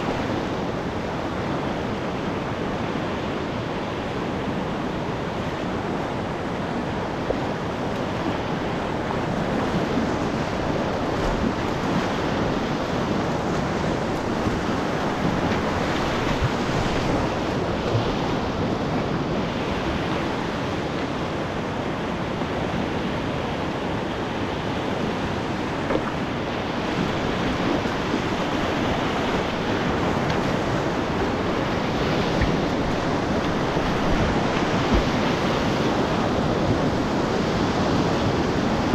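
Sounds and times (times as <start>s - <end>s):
whitewater rapids rushing: 0.0s - 38.9s.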